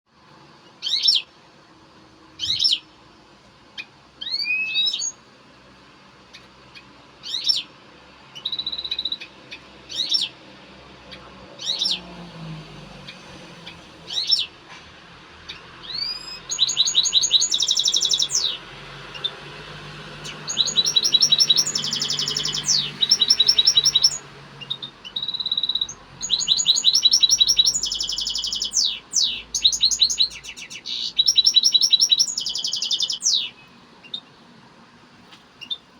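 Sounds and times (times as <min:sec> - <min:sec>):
goldfinch singing: 0:00.8 - 0:01.3, 0:02.4 - 0:02.9, 0:03.8 - 0:05.2, 0:06.3 - 0:07.7, 0:08.3 - 0:10.4, 0:11.1 - 0:12.1, 0:13.0 - 0:14.6, 0:15.4 - 0:34.4.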